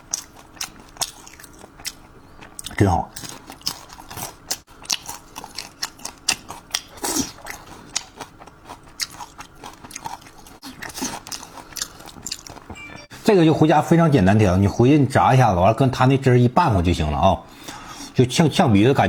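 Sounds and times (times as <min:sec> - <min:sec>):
chewing crispy food: 0:00.0 - 0:12.8.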